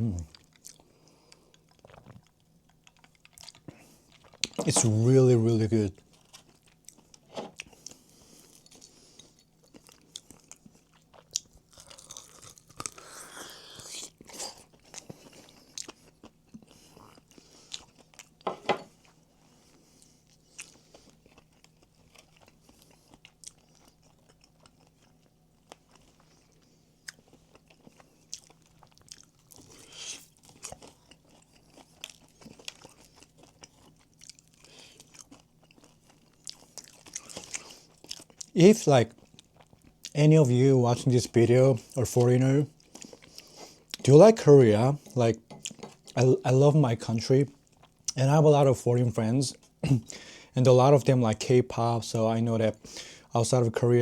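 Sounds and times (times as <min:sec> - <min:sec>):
crunching and chewing fried chicken: 0:00.0 - 0:54.0.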